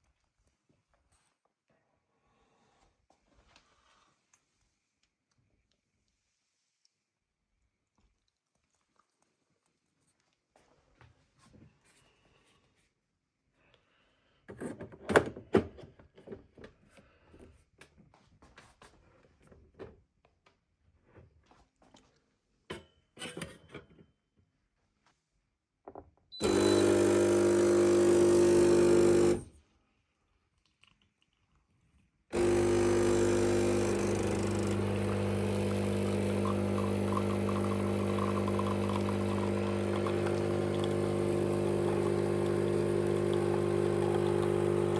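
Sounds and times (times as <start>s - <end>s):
espresso machine pump humming: 26.4s - 29.5s, 32.3s - 44.9s.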